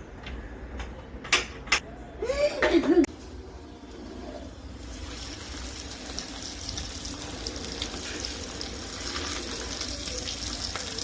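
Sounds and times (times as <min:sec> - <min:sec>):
chicken deep-frying in oil: 0:04.5 - 0:11.0.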